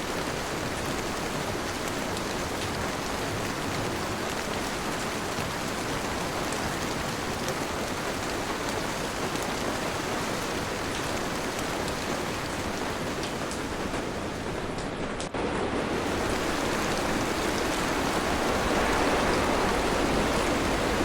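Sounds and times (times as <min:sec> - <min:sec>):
heavy rain falling: 0:00.0 - 0:21.0
rain drop ticks: 0:00.1 - 0:15.4.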